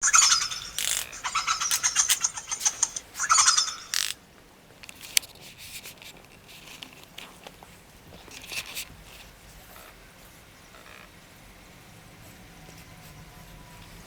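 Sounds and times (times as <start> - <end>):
monkey chattering screeches: 0.0 - 4.2.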